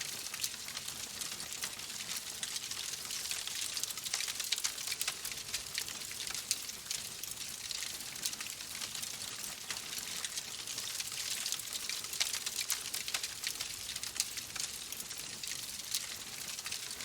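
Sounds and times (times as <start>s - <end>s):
wood fire crackling: 9.2s - 17.0s.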